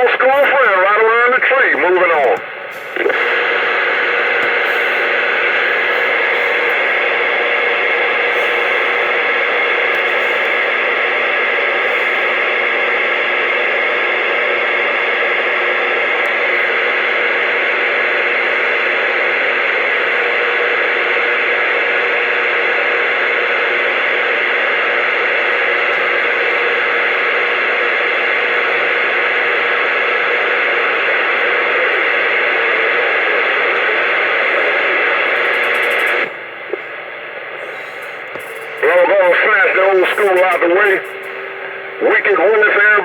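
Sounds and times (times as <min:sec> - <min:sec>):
radio static hiss: 0:00.0 - 0:43.0.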